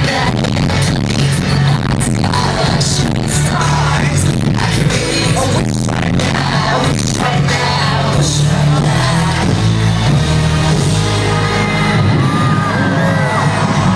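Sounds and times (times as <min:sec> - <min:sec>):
live hip-hop song over sound system: 0:00.0 - 0:13.9.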